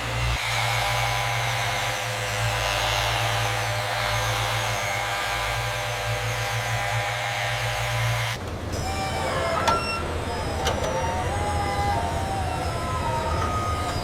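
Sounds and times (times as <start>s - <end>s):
electric motor whirring: 0.0s - 14.0s.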